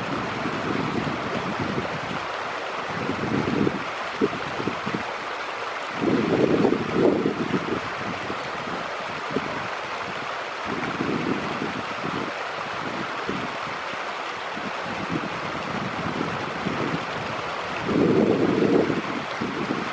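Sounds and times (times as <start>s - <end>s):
wind buffeting microphone: 0.0s - 2.3s, 2.9s - 5.1s, 6.0s - 13.8s, 14.6s - 19.9s.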